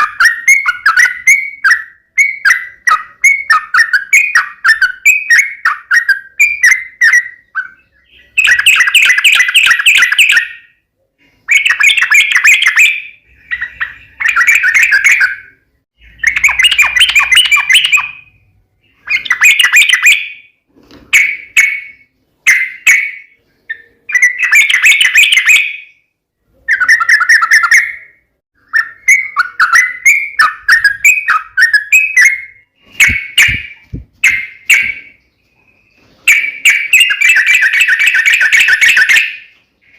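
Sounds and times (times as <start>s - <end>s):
bird singing bubbly chattering notes: 11.5s - 20.4s.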